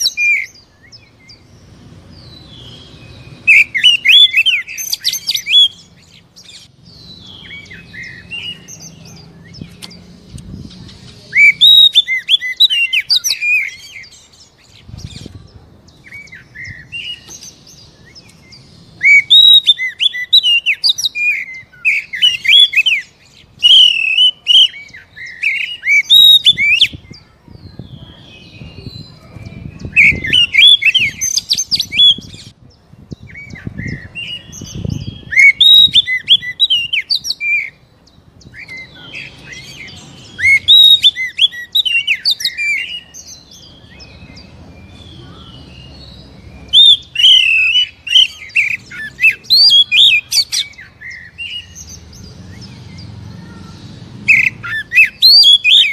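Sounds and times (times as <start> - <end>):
bird singing whistled phrases: 2.2 - 5.9, 11.3 - 14.3, 16.0 - 32.4, 33.3 - 37.8, 38.5 - 52.8, 54.3 - 55.9.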